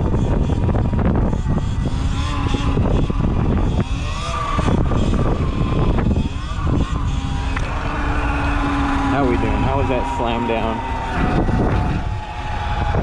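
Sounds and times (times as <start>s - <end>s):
wind buffeting microphone: 0.0s - 13.0s
motorcycle engine: 4.5s - 13.0s.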